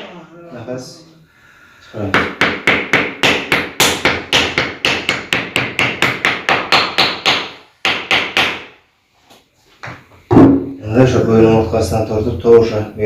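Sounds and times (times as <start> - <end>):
mallet knocking rapidly: 2.1 - 8.7.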